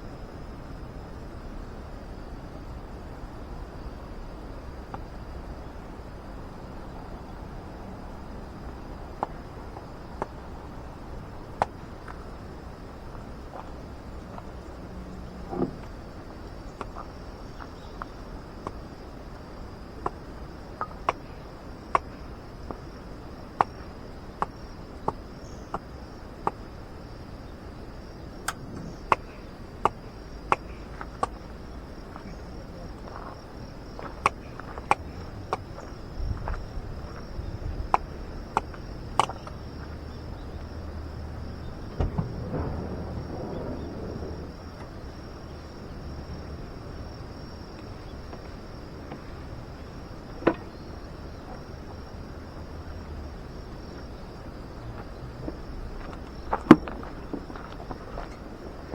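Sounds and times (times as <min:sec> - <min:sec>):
crickets trilling: 0:00.0 - 0:58.9
low rumble: 0:41.1 - 0:47.2.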